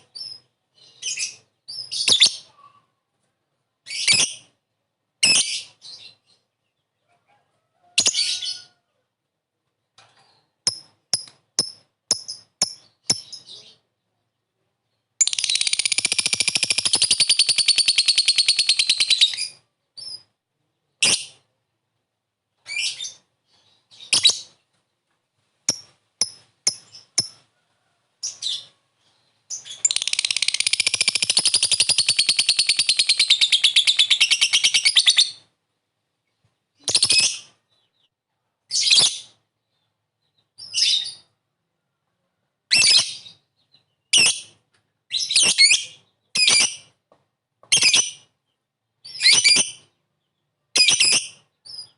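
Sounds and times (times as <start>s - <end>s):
lovebird chattering: 10.7s - 13.5s, 15.2s - 19.4s, 25.7s - 27.4s, 29.6s - 35.2s.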